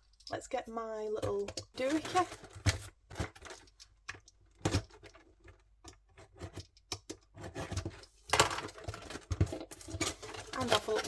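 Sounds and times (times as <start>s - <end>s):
cardboard box handled and cut: 8.9s - 11.0s.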